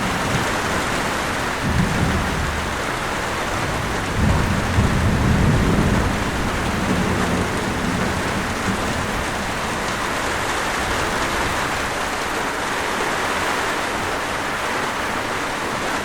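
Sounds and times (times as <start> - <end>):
thunder rumbling: 0.0 - 12.0
heavy rain: 0.0 - 16.0.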